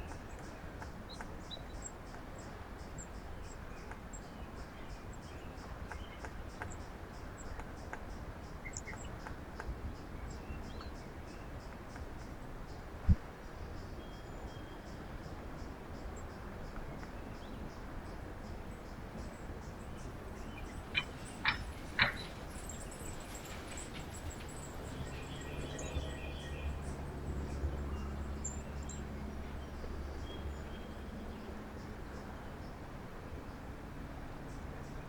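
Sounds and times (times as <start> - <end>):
faint high bird chirps: 19.9 - 26.8
short sharp bird calls: 20.4 - 22.8.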